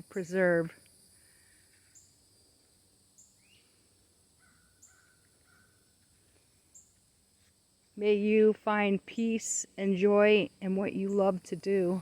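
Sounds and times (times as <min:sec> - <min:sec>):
high insect drone: 0:00.0 - 0:12.0
distant birds chirping: 0:01.1 - 0:07.2.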